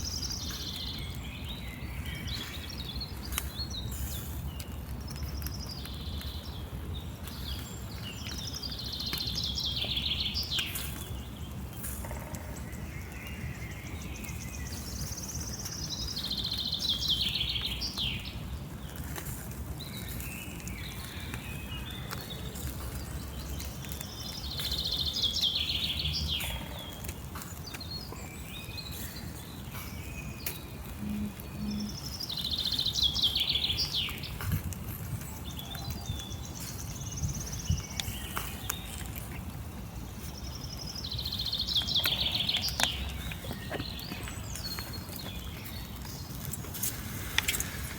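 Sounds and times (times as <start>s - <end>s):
outdoor background: 0.0s - 47.9s
songbird trilling: 23.6s - 34.3s, 40.4s - 46.3s.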